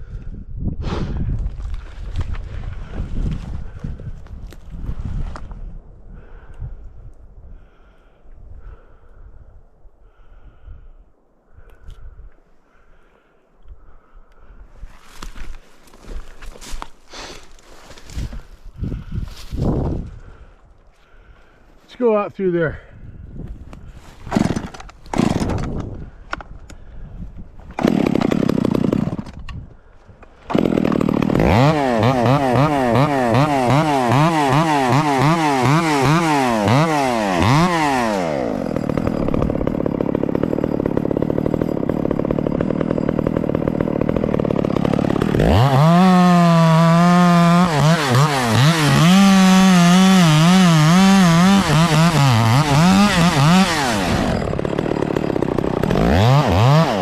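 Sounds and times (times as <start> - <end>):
chainsaw revving: 24.2 - 25.8, 27.8 - 29.4, 30.4 - 57.0.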